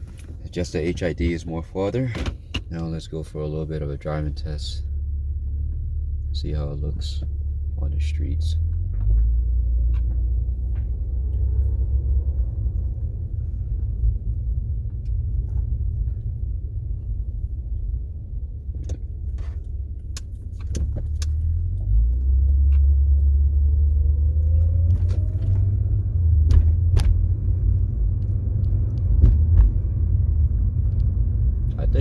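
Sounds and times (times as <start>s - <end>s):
car road and engine rumble: 0.0s - 32.0s
light clicks and rattles: 18.7s - 25.8s.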